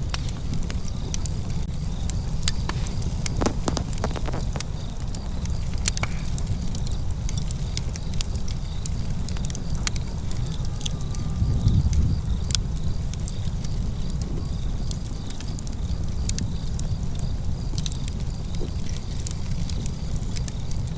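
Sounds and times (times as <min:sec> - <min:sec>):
fire snaps and pops: 0:02.2 - 0:06.1.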